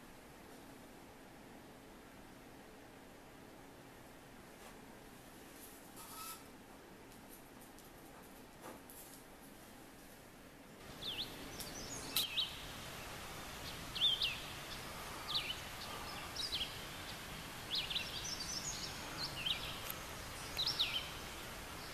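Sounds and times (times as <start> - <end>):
steady hiss: 0.0 - 21.9
small birds chirping: 10.8 - 21.9.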